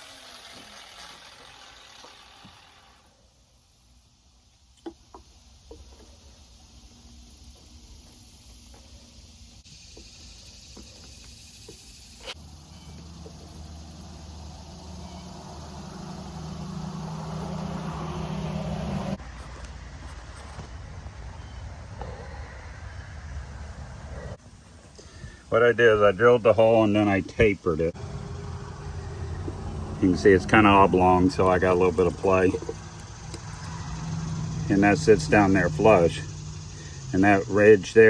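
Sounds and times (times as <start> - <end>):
low motor hum: 0.0 - 3.2, 12.3 - 24.4, 27.9 - 38.0.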